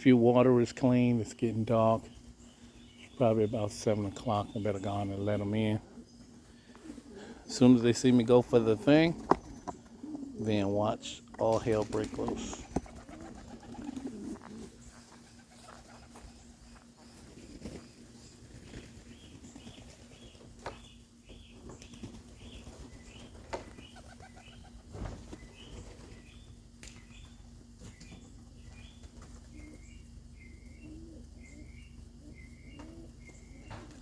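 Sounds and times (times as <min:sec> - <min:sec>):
steady low hum: 0:00.0 - 0:34.0
pigeon wings flapping: 0:11.5 - 0:16.3
small bird chirping: 0:12.5 - 0:34.0.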